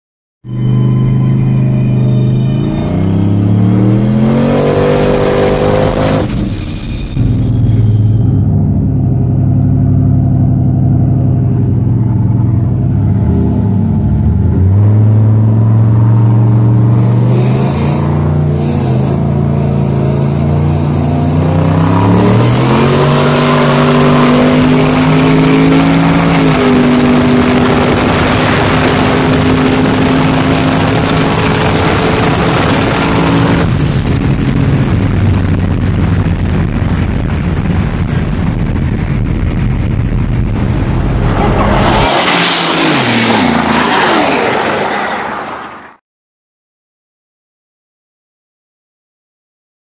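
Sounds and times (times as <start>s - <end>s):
engines revving at full throttle: 1.8s - 8.5s, 10.4s - 45.8s
wind noise rushing: 21.4s - 45.3s.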